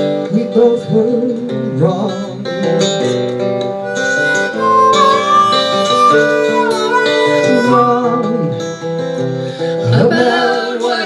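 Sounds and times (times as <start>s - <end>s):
strummed guitar chords: 0.0s - 11.0s
lead melody bending in pitch: 3.8s - 8.6s.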